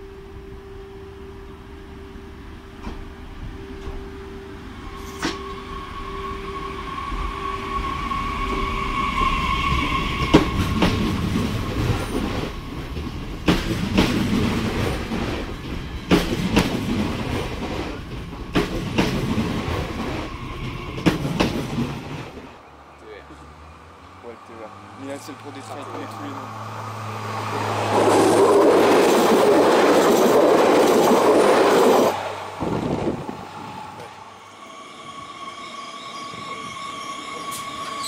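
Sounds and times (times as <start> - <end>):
high whine: 0.0 - 13.5
train pulling in: 0.0 - 38.0
wheels clacking on rails: 7.2 - 34.2.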